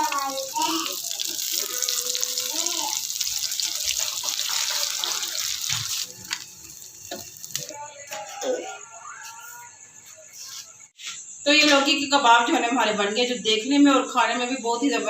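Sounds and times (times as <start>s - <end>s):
rushing water: 0.0s - 7.7s.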